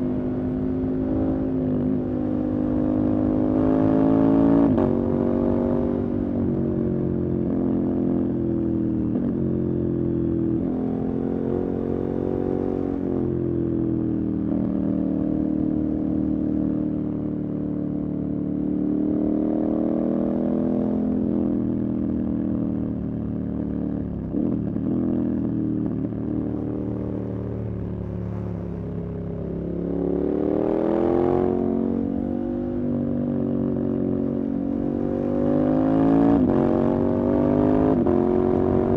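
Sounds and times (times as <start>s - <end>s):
motorcycle engine revving: 22.0s - 38.9s.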